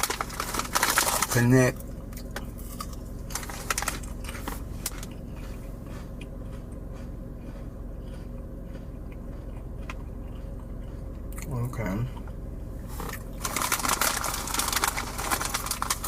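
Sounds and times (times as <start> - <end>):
low hum inside car cabin: 0.0 - 16.0
crackles and clicks: 13.0 - 16.0.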